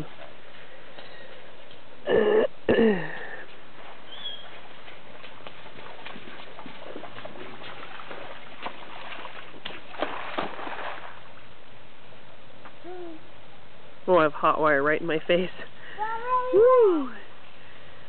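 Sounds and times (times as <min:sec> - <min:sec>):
splashing in shallow water: 0:03.7 - 0:11.6.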